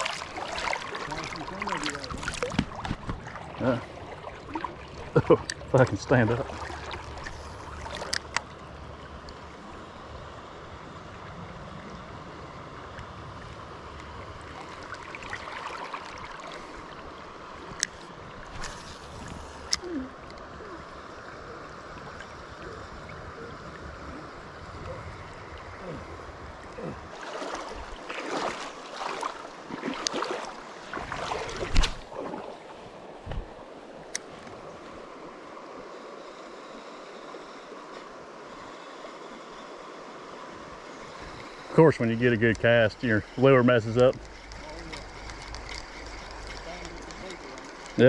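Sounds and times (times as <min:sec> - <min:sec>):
splashes of wading: 0:00.0 - 0:08.5, 0:14.4 - 0:20.2, 0:26.7 - 0:35.2
river current rushing: 0:00.0 - 0:08.9, 0:14.4 - 0:23.2, 0:23.9 - 0:48.0.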